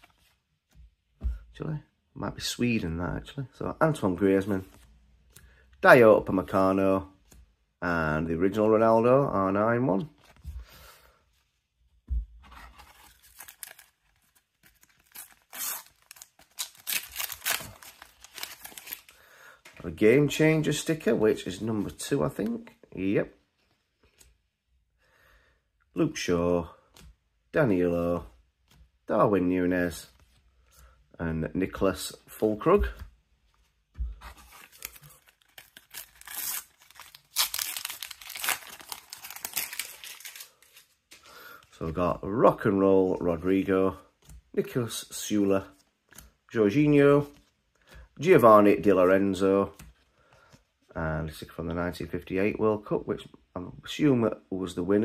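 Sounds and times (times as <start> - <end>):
paper packet tearing and rustling: 12.7 - 19.2, 34.4 - 41.1.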